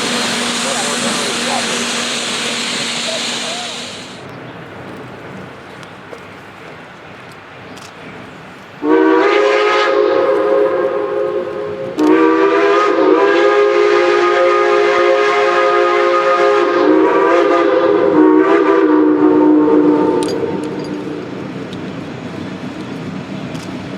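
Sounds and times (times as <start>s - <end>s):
steam locomotive whistle blasts: 0.0s - 4.2s, 8.8s - 20.8s.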